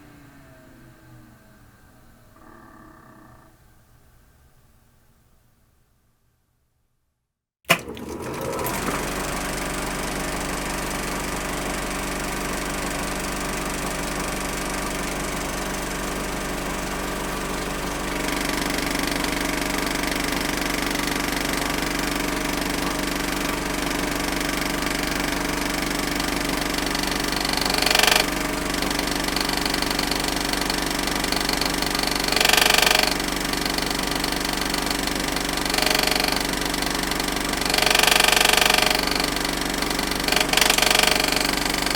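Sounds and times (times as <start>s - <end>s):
projector switch click: 7.7s - 8.2s
film projector clattering: 7.7s - 16.8s, 17.7s - 41.9s.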